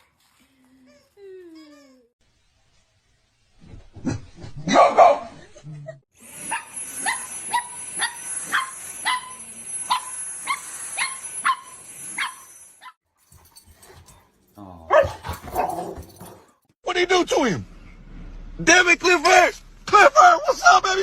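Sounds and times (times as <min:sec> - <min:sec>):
dog barking: 0:04.7 - 0:05.4, 0:14.8 - 0:16.5.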